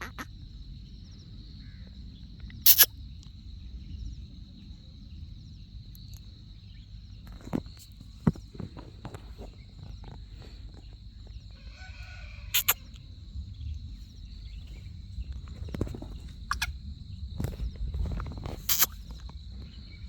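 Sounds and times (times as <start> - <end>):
bird harsh patterned call: 0.0 - 0.3, 2.7 - 2.9, 12.0 - 12.8, 16.5 - 16.7, 18.7 - 19.0
high insect-like tone: 0.0 - 0.4, 2.5 - 3.0, 11.8 - 13.0, 15.3 - 19.4.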